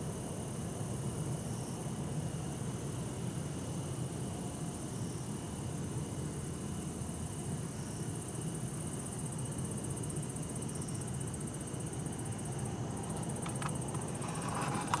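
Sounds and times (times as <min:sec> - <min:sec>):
night insects trilling: 0:00.0 - 0:15.0
distant city traffic: 0:12.0 - 0:15.0.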